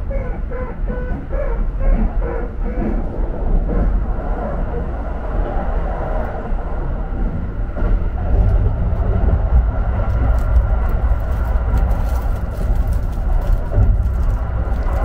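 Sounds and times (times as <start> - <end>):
train rumbling inside carriage: 0.0 - 15.0
plastic wrapper crinkling: 10.1 - 15.0.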